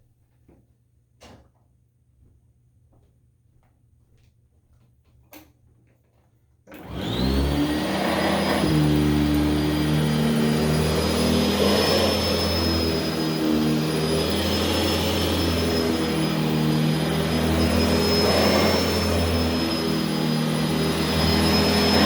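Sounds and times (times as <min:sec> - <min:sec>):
upright vacuum cleaner running: 0:06.7 - 0:22.0.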